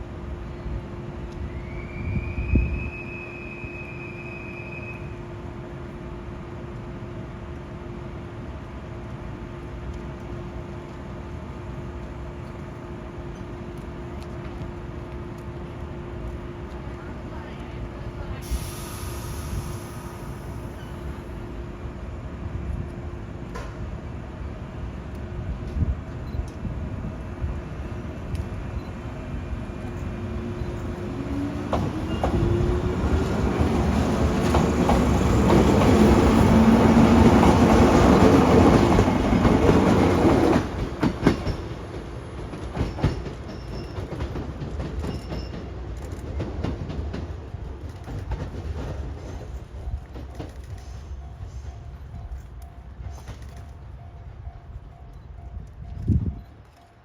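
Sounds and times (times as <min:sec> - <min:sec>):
train wheels clicking over rail joints: 0:29.8 - 0:57.0.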